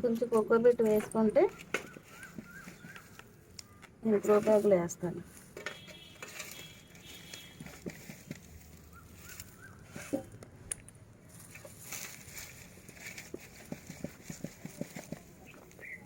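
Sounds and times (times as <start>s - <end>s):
soil scraping: 4.2s - 10.4s.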